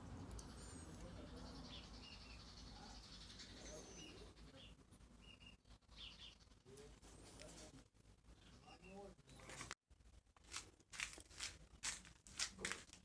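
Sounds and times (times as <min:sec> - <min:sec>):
bird chirps: 0:00.0 - 0:06.8.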